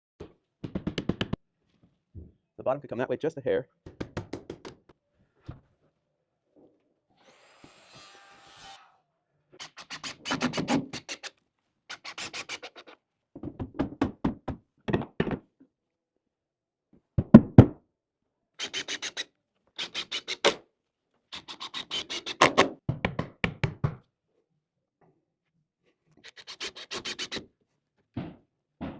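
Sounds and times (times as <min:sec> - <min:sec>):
knocking and tapping on wood: 0:00.2 - 0:01.4, 0:03.8 - 0:04.9, 0:13.4 - 0:15.5, 0:22.9 - 0:24.0.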